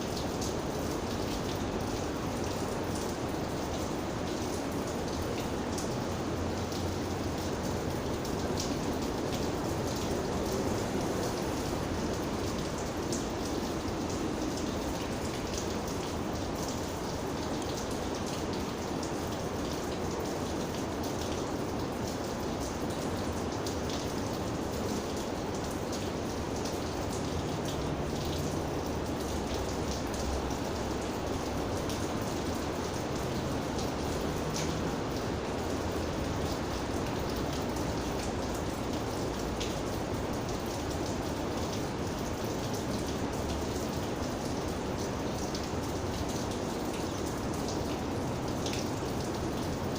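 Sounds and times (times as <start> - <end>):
steady rainfall: 0.0 - 49.9.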